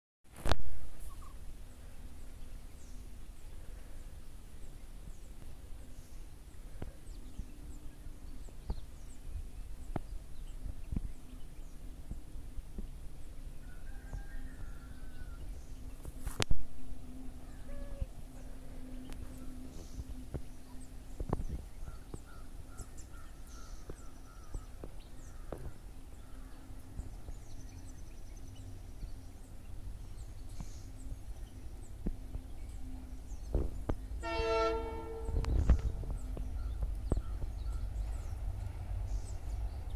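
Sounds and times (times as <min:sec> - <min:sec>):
faint steady hum: 0:00.4 - 0:39.9
small birds chirping: 0:01.0 - 0:39.9
low rumble: 0:14.4 - 0:39.9.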